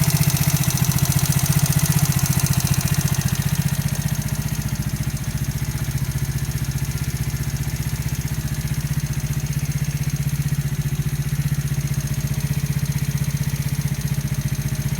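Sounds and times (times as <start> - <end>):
engine knocking tick: 0.0 - 14.9
small engine idling: 0.0 - 14.9.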